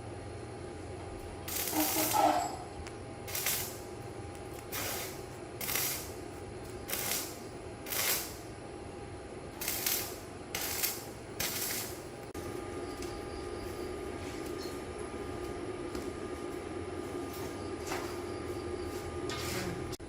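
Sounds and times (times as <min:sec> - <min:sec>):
short hissing sprays: 0:04.6 - 0:06.2.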